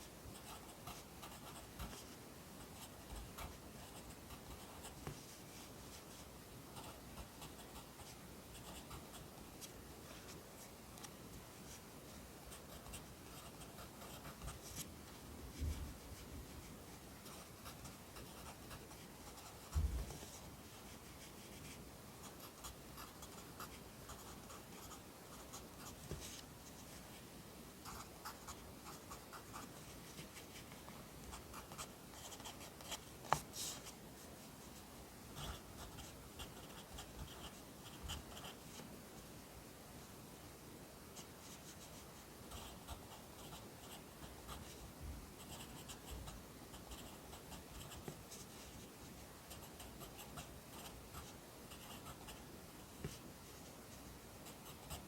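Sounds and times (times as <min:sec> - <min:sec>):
pen scratching on paper: 0:00.3 - 0:02.1, 0:02.8 - 0:06.0, 0:12.6 - 0:14.9, 0:17.2 - 0:26.4, 0:31.3 - 0:34.0, 0:35.4 - 0:38.6, 0:54.4 - 0:55.0.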